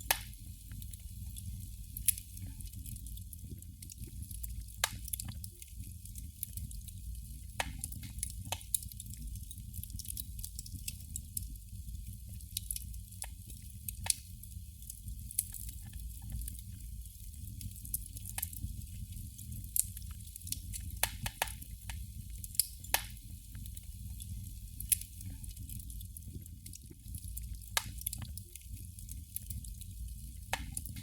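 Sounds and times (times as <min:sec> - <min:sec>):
candle flame crackling: 0:00.0 - 0:31.0.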